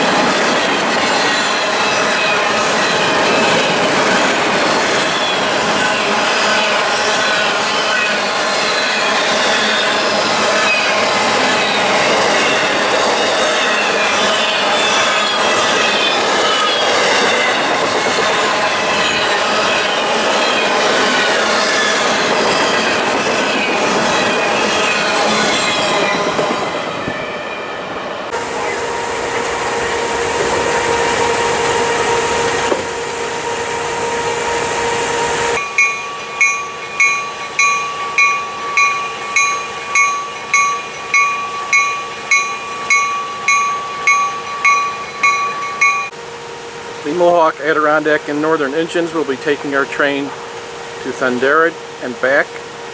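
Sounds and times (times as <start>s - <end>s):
freight train wheels squealing: 0.0s - 46.2s
bell ringing: 35.6s - 46.1s.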